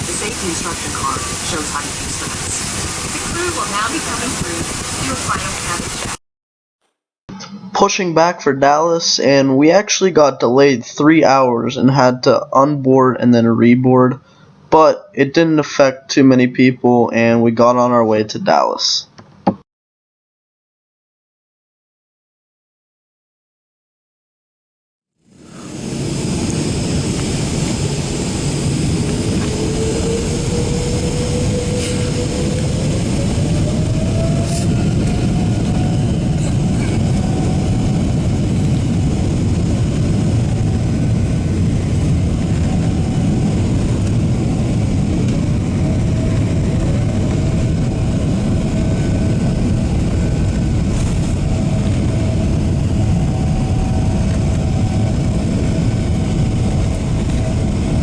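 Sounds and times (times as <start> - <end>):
jet engine rumble in cabin: 0.0 - 6.2, 25.3 - 58.0
jet engine whine: 0.0 - 6.2, 7.3 - 13.4, 25.2 - 58.0.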